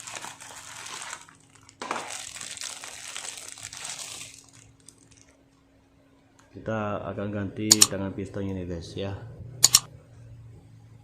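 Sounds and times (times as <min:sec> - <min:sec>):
crinkling rustling handling noise: 0:00.0 - 0:05.5
faint steady hum: 0:00.0 - 0:11.0.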